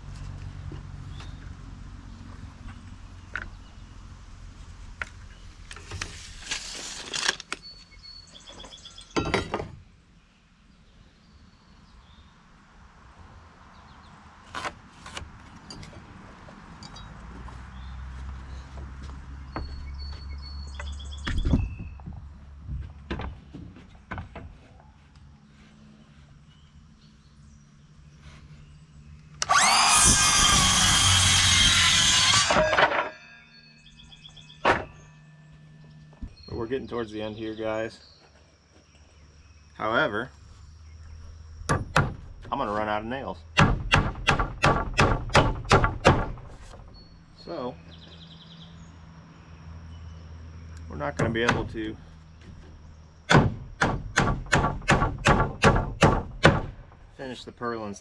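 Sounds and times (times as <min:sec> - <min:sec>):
birds chirping: 0:07.5 - 0:12.6, 0:15.4 - 0:30.0, 0:31.5 - 0:43.6, 0:46.3 - 0:53.3
power tool motor running: 0:29.4 - 0:32.8.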